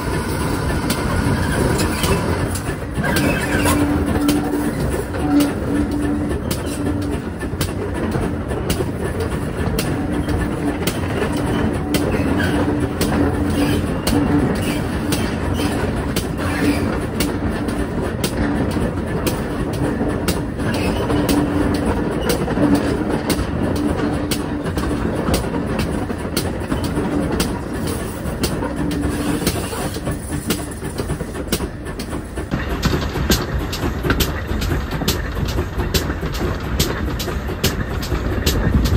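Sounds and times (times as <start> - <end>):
train rumbling along: 0.0 - 38.9
wheels clacking over rail joints: 0.0 - 38.9.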